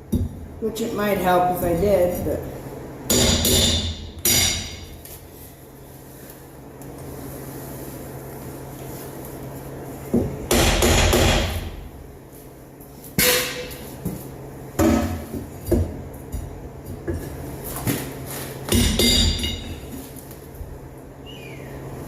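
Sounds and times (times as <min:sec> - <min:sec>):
hammering on metal: 0:03.1 - 0:04.8, 0:10.5 - 0:11.7.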